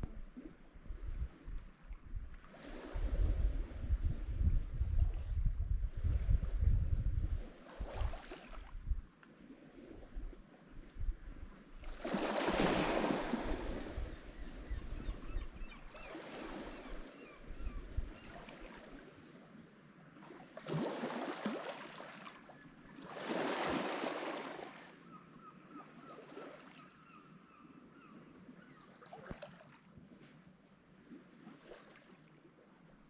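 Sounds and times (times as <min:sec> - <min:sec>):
waves crashing on shore: 0:11.8 - 0:14.2, 0:23.0 - 0:24.8.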